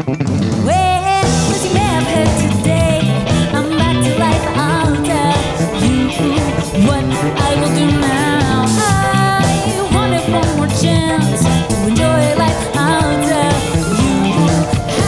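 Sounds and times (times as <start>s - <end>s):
funk rock band playing live: 0.0s - 15.0s.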